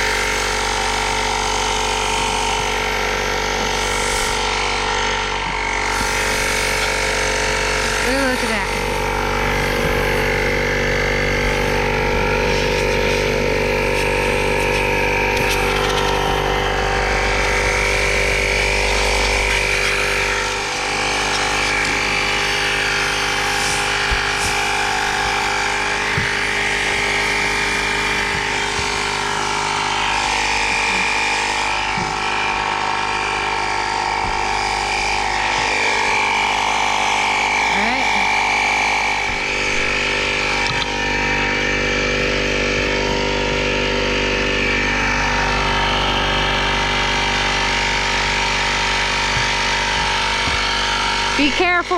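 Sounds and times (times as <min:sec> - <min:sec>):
air compressor motor whine: 0:00.0 - 0:51.9.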